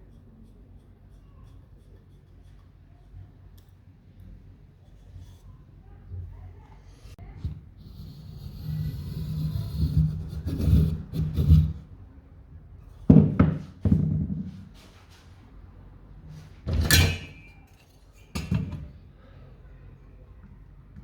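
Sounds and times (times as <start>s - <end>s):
knocks and thumps: 13.1s - 14.7s.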